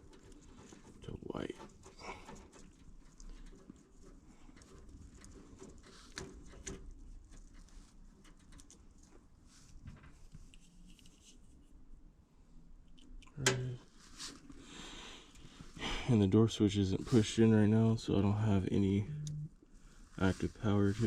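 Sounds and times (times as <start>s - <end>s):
wires and tools handled: 0.0s - 11.8s.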